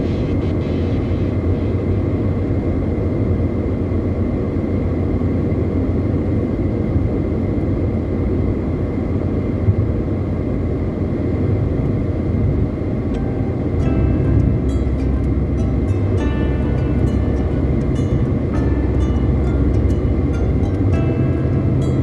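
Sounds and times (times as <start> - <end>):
car driving on highway: 9.5 - 22.0.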